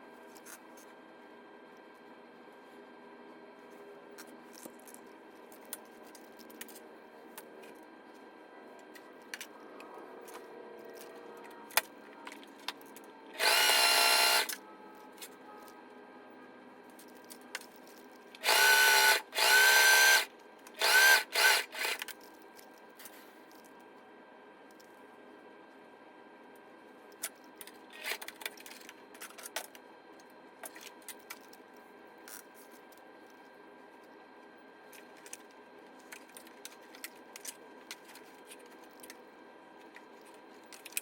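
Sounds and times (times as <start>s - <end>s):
sewing machine motor whine: 13.3s - 14.6s, 18.4s - 22.0s.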